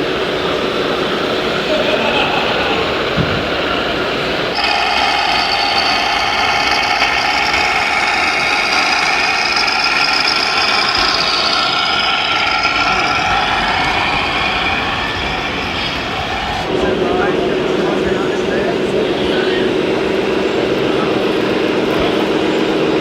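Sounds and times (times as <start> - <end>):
small electric motors whining: 0.0 - 16.8.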